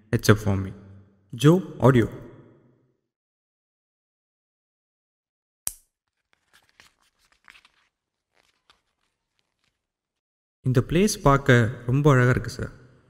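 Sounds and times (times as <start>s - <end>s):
rustling and crackling handling noise: 6.0s - 10.2s.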